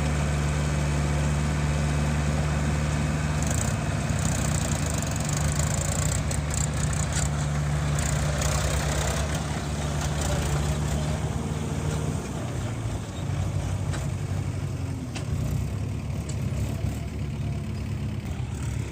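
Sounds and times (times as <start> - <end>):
diesel engine running: 0.0 - 18.9.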